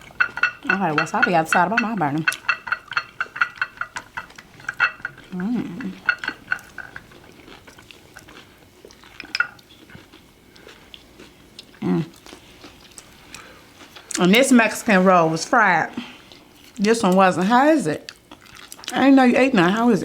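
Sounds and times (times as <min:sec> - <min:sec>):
utensils clinking against dish: 0:00.0 - 0:07.2, 0:09.1 - 0:09.6
small eating sounds: 0:00.0 - 0:20.0.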